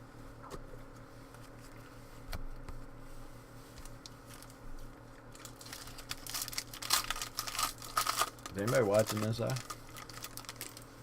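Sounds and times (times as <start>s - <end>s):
low electrical hum: 0.0s - 11.0s
trading cards rustling: 5.4s - 10.9s.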